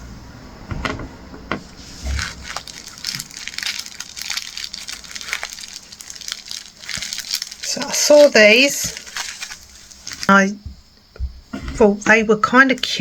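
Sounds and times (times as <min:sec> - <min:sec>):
plastic packaging crinkling: 0:01.8 - 0:10.5.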